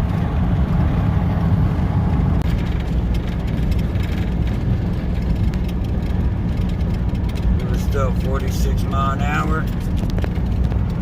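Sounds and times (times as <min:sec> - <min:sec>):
diesel engine droning: 0:00.0 - 0:11.0
road and wind noise: 0:00.0 - 0:11.0.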